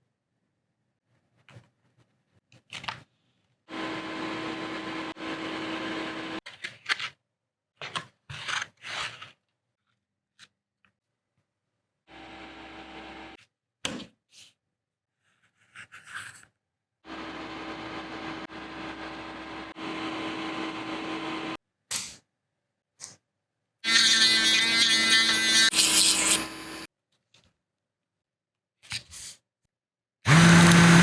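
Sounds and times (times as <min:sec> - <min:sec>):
small electric tool humming: 0:17.1 - 0:21.6, 0:23.8 - 0:26.9, 0:30.3 - 0:31.0.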